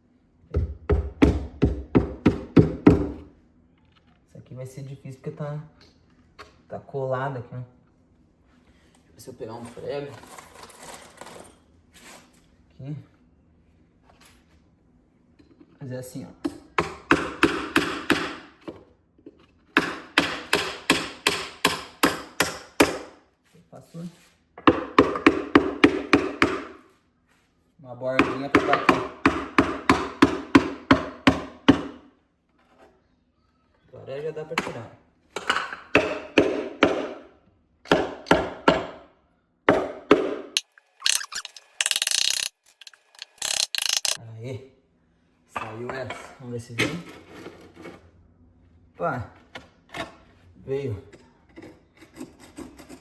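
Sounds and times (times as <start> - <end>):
rattle of clicks: 40.6 - 44.2.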